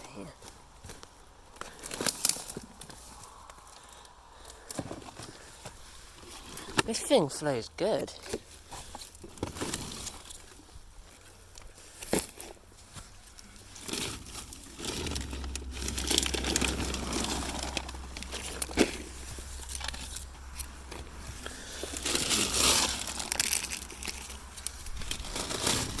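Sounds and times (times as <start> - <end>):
close rustling and crinkling: 0.0 - 26.0
low steady rumble: 12.5 - 26.0.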